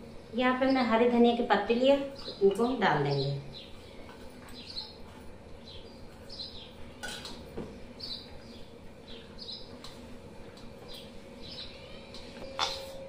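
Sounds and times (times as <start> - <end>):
small bird chirping: 3.1 - 7.0, 7.9 - 9.8, 10.8 - 12.4.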